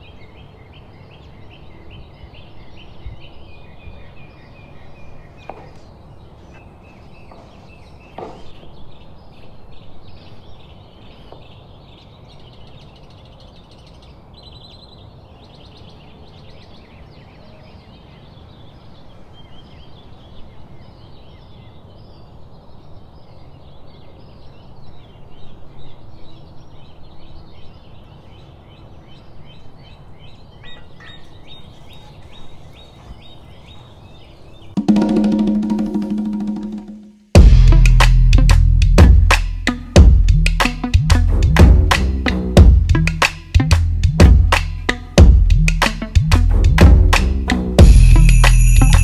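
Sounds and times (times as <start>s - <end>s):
small birds chirping: 0.0s - 36.5s.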